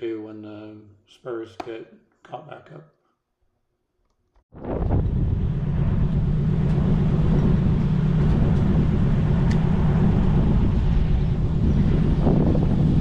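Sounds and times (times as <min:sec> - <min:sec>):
engine running steadily: 0:04.6 - 0:13.0.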